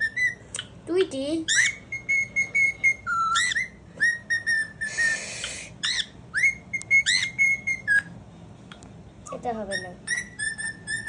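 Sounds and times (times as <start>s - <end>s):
cockatiel whistling: 0.0s - 0.7s, 1.5s - 8.1s, 9.3s - 11.0s.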